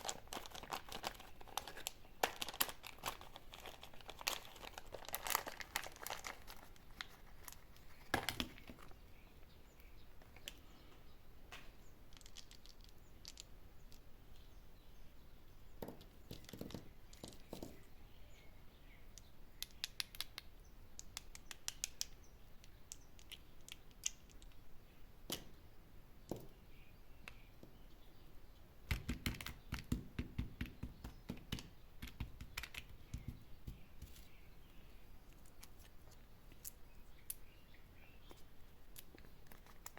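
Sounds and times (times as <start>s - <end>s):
plastic wrappers crinkling: 0.0s - 9.0s, 38.9s - 39.9s.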